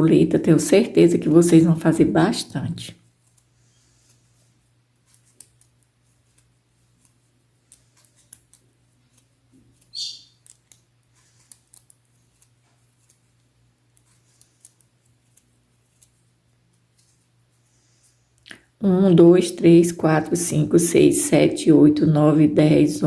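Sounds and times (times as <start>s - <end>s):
low steady hum: 0.0s - 23.0s
crochet hook clicking and scraping: 5.0s - 16.2s.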